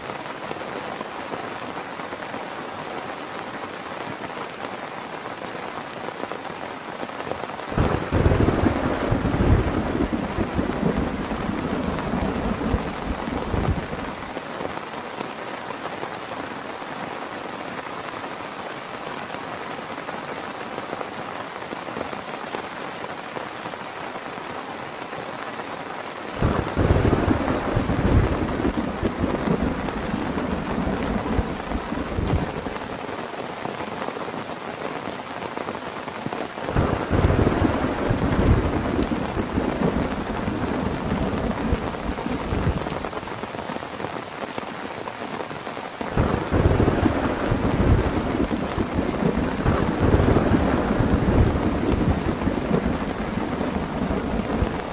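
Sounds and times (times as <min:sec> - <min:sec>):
heavy rain falling: 0:00.0 - 0:54.9
thunder rumbling: 0:07.8 - 0:14.3, 0:26.4 - 0:32.9, 0:36.7 - 0:43.2, 0:46.2 - 0:54.9.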